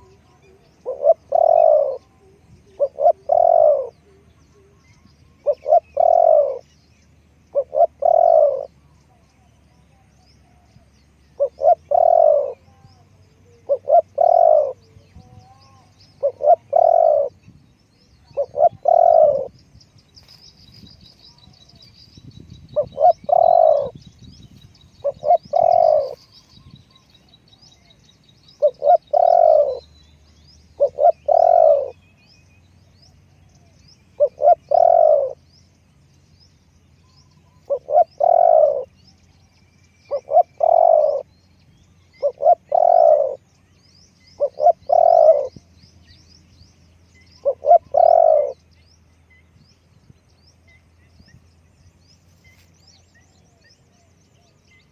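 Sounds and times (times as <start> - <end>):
dove cooing: 0.0 - 6.8, 7.5 - 8.9, 11.3 - 17.4, 18.1 - 19.6, 22.7 - 24.0, 24.9 - 27.2, 27.8 - 30.0, 30.7 - 32.2, 33.6 - 35.4, 37.4 - 39.2, 40.0 - 41.4, 42.1 - 43.5, 44.3 - 45.7, 47.3 - 48.6
small birds chirping faintly: 0.0 - 54.9.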